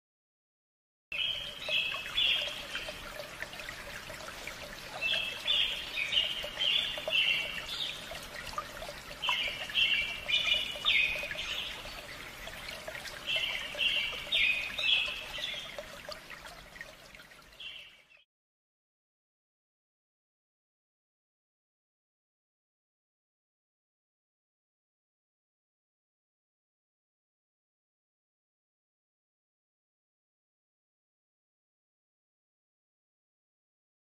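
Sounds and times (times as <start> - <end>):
songbird singing: 1.1 - 16.2, 17.5 - 18.2.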